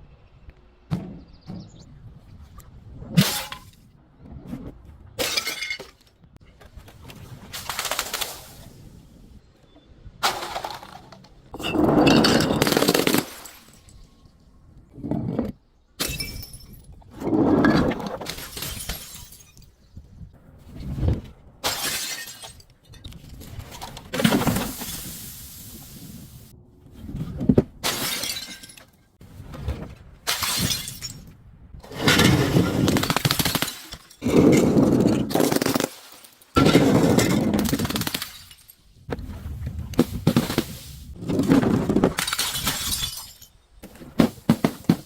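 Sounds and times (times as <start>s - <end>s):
glass bottles shattering: 5.2s - 6.0s, 10.2s - 14.1s, 16.0s - 16.9s, 18.2s - 19.8s, 21.6s - 23.1s, 27.8s - 29.0s, 30.3s - 31.3s, 32.0s - 38.8s, 42.1s - 43.6s
objects being crushed: 10.2s - 13.8s, 29.6s - 39.2s, 40.0s - 45.0s.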